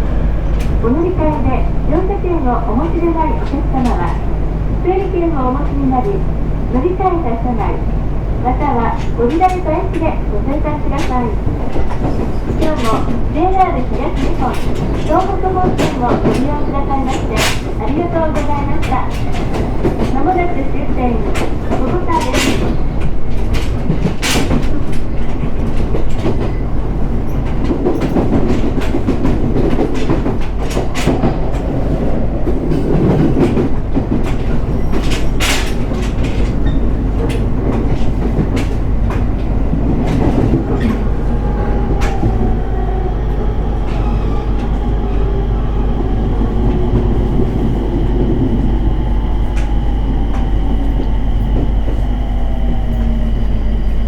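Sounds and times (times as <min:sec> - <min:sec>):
train wheels clacking over rail joints: 0:08.8 - 0:31.8, 0:32.5 - 0:42.8.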